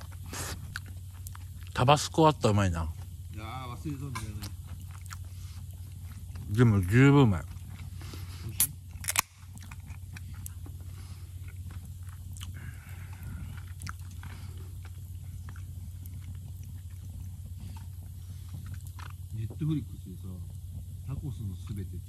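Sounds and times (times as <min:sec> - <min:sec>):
person chewing food: 0:00.0 - 0:01.8, 0:04.1 - 0:19.4
steady low hum: 0:00.0 - 0:22.0.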